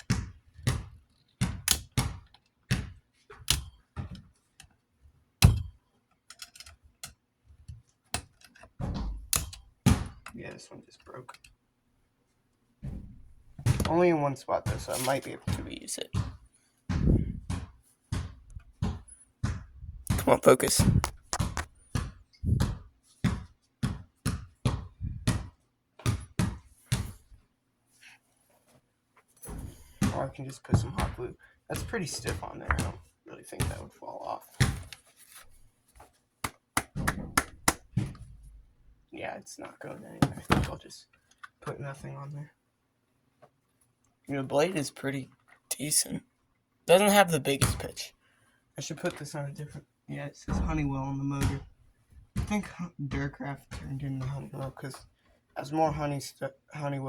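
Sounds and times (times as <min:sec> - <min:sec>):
plastic parts clicking and knocking: 0:00.0 - 0:04.8, 0:05.4 - 0:10.4.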